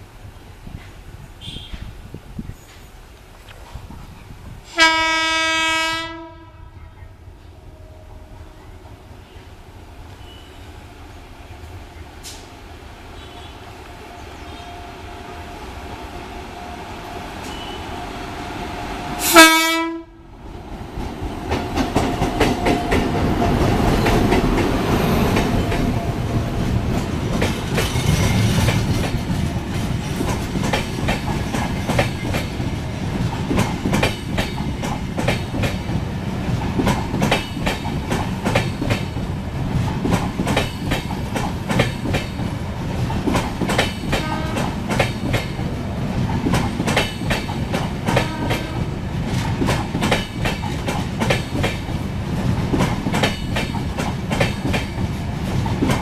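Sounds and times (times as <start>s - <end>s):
train coaches rumbling: 0.0s - 56.0s
train horn blast: 4.7s - 6.9s, 13.2s - 20.2s, 44.1s - 44.9s, 48.1s - 48.9s
wheels clacking over rail joints: 20.9s - 56.0s.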